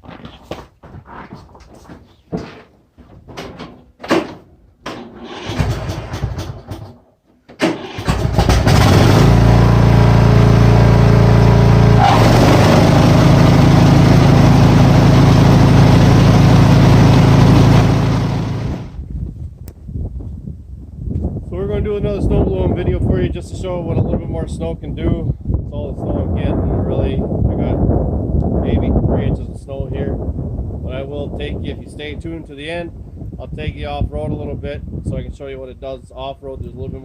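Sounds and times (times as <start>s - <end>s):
knocks and clatters: 0.0s - 9.0s
engine starter cranking: 4.0s - 9.5s
lawn tractor engine running: 4.8s - 19.0s.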